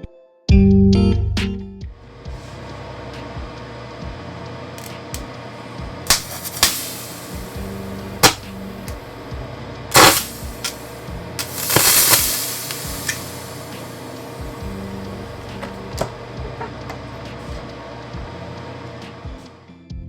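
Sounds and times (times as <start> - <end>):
hissing rush of venting: 2.3 - 16.5
capacitors popping: 6.1 - 9.0, 9.9 - 17.0
capacitor bang: 6.1 - 9.1, 9.9 - 16.6.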